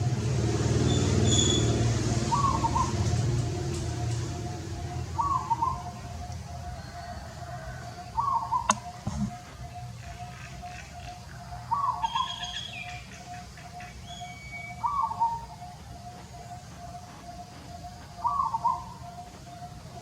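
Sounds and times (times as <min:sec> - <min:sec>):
pulsing chirp: 0:00.9 - 0:20.0
higher bird call: 0:06.7 - 0:19.6.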